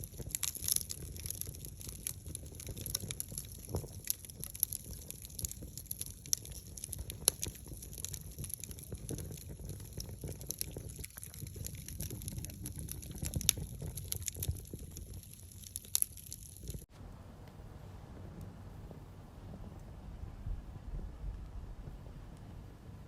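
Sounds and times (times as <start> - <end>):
wood fire crackling and popping: 0.0 - 16.9
low rumble of burning: 0.0 - 23.0.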